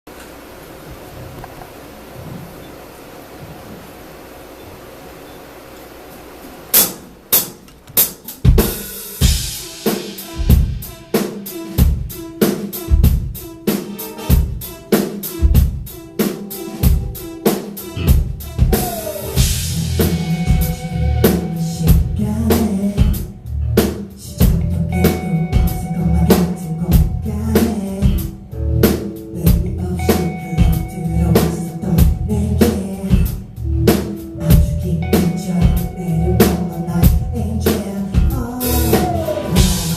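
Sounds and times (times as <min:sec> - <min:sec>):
drum kit beat: 0:06.7 - 0:39.9
cymbal swells: 0:16.0 - 0:23.4
bass line: 0:16.4 - 0:39.9.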